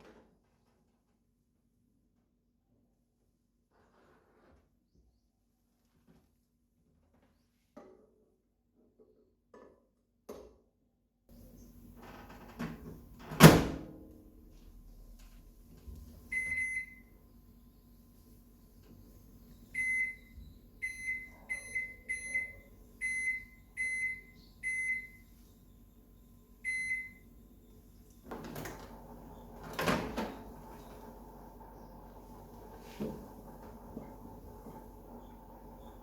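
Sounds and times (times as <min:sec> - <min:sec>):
microwave beeping: 0:16.2 - 0:17.3, 0:19.1 - 0:36.0.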